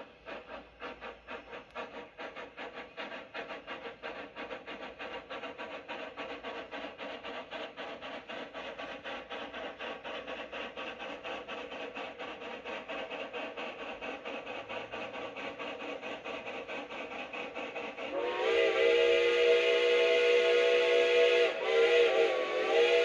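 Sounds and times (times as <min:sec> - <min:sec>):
steam locomotive chuffing: 0:00.0 - 0:23.0
steam whistle blowing: 0:18.1 - 0:23.0.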